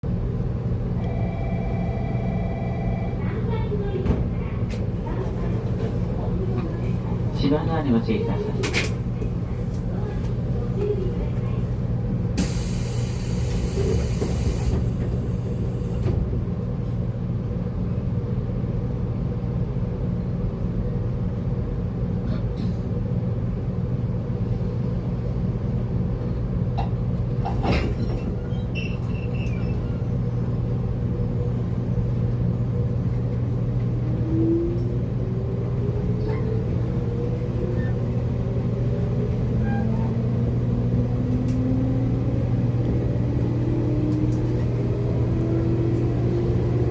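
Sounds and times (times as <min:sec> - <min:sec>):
air hiss: 0:12.4 - 0:14.8.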